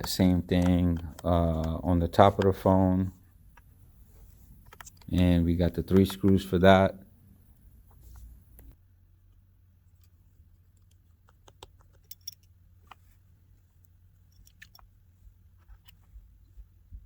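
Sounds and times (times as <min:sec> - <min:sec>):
small screws and screwdriver clicking: 0:00.0 - 0:02.6, 0:04.6 - 0:06.5, 0:09.9 - 0:13.1, 0:13.7 - 0:15.0.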